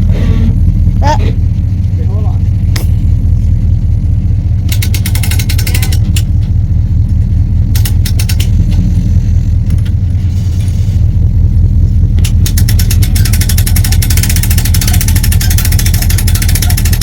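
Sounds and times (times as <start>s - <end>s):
car engine and road noise: 0.0s - 17.0s
rapid clicking rattles: 4.6s - 10.2s, 12.0s - 17.0s.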